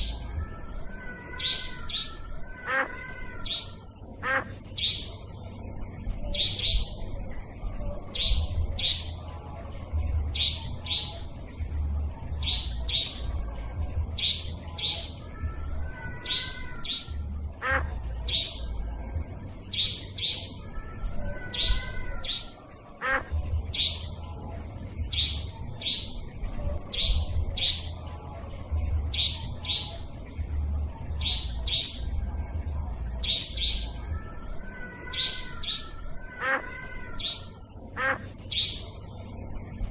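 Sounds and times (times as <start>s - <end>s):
nightjar calling: 0.0s - 9.4s, 10.3s - 11.5s, 12.4s - 13.5s, 14.1s - 24.3s, 25.0s - 28.1s, 29.1s - 30.2s, 31.1s - 32.2s, 33.2s - 39.3s
low rumble: 23.2s - 34.2s.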